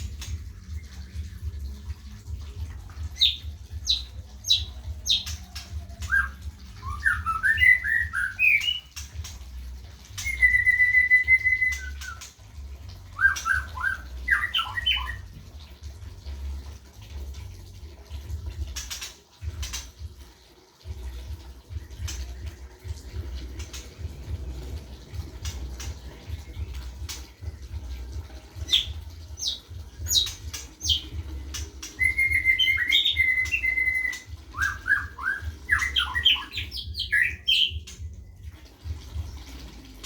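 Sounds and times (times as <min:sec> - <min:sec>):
bird calling and chattering: 0:28.6 - 0:38.0.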